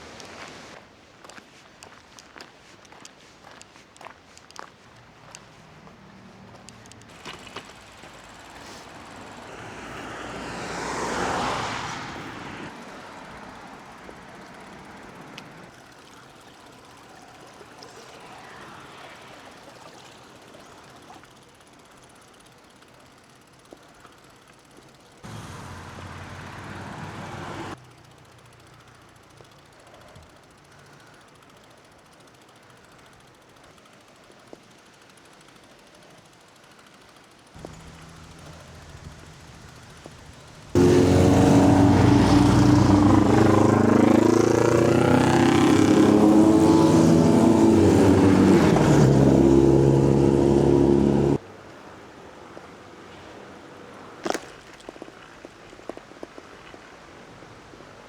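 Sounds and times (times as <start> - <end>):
road noise: 0.0 - 0.8, 3.4 - 20.2, 25.2 - 29.2, 37.6 - 54.4
vehicle passing by: 5.3 - 15.7, 25.2 - 27.8, 37.6 - 51.4.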